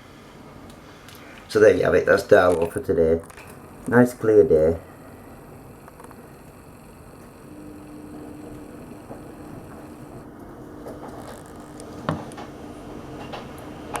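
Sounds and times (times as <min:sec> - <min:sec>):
faint thin hum: 0:00.8 - 0:13.2
small clicks: 0:05.8 - 0:10.2.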